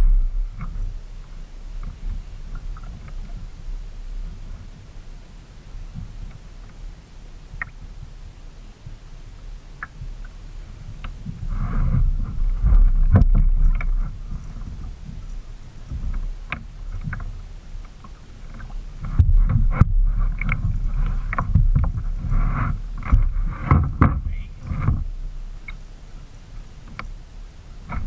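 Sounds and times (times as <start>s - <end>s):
low microphone rumble: 0.0s - 28.0s
paddle splashes: 0.0s - 28.0s
knocks against kayak hull: 23.0s - 25.1s.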